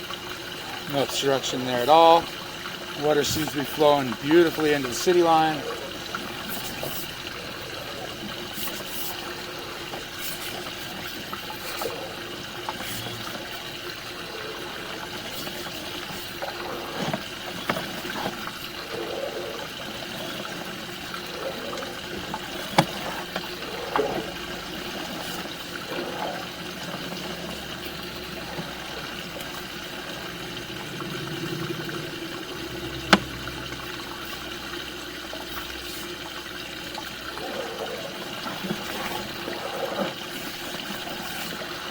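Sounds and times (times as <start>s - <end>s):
water rushing through pipe: 0.0s - 41.9s.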